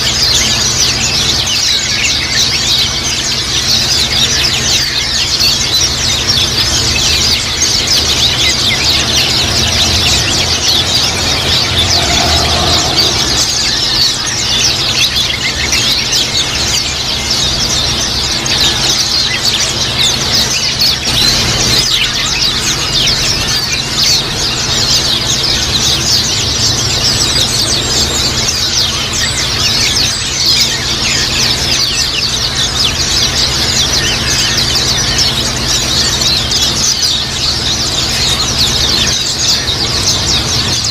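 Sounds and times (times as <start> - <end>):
birds chattering high chirps: 0.0 - 40.9.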